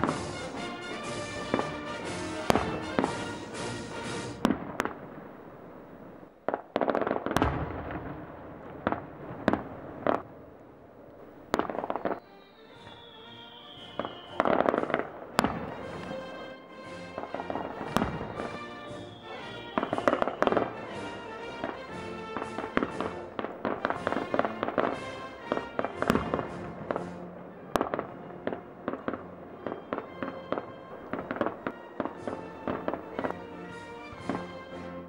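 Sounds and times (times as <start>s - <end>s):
music: 0.0s - 4.8s, 11.6s - 35.0s
falling firework whistle: 0.0s - 5.0s, 11.5s - 28.1s, 28.9s - 34.6s
firework crackle: 0.0s - 35.0s
fireworks bangs: 0.0s - 35.0s.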